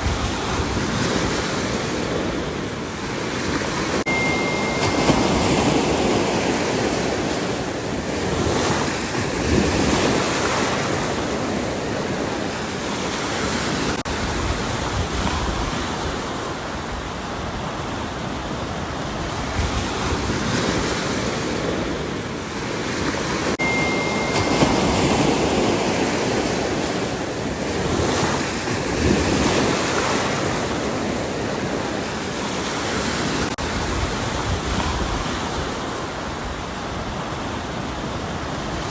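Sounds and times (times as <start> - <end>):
ocean waves breaking: 0.0 - 38.9
high beep: 4.1 - 6.8, 23.6 - 26.0.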